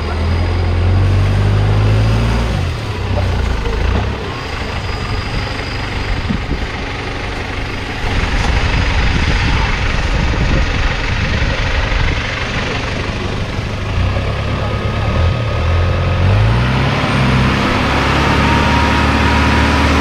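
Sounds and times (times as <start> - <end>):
off-road engine running: 0.0 - 20.0.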